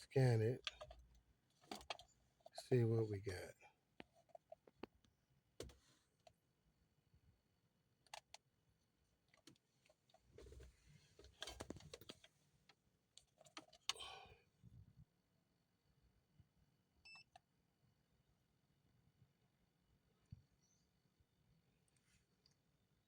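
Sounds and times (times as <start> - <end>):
handling rustling: 9.4 - 12.4.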